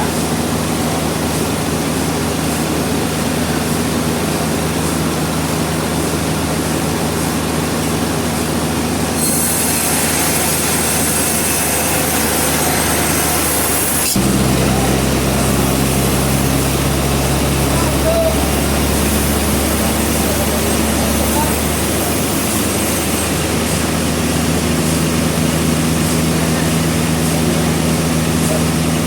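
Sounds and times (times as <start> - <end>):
high hiss and whine: 9.2 - 28.8
sawing noise: 9.2 - 29.0
motor hum: 9.8 - 29.0.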